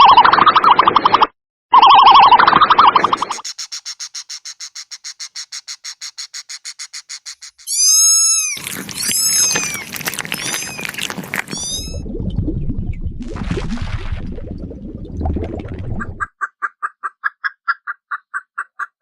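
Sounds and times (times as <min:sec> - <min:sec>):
animal trill: 0:01.8 - 0:12.0
high squeaky animal calls: 0:03.0 - 0:12.0.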